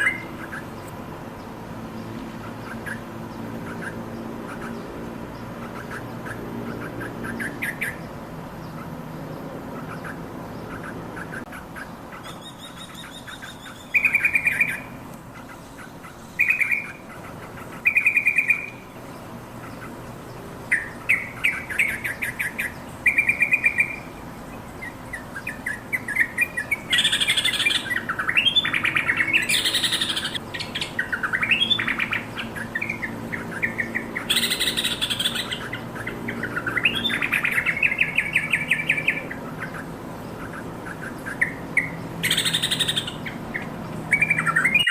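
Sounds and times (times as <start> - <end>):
bird chattering calls: 0.0 - 0.9, 2.4 - 44.9.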